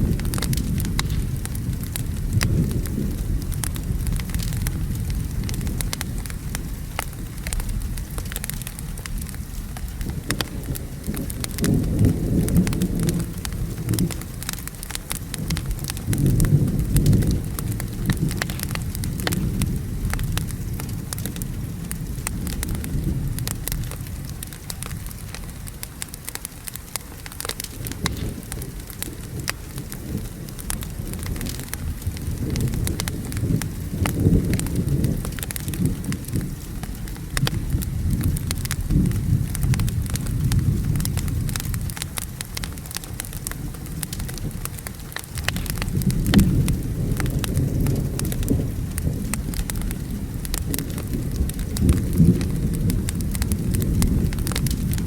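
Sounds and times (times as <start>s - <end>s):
steady rain: 0.0s - 55.0s
thunder rumbling: 0.0s - 55.0s
wood fire crackling: 0.0s - 55.0s.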